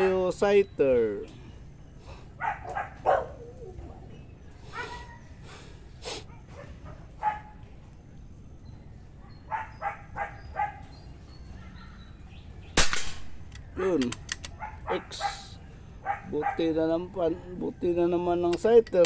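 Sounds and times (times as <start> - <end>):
dog barking: 2.4 - 4.1, 4.7 - 5.3, 6.2 - 7.7, 9.2 - 12.1, 14.5 - 17.8.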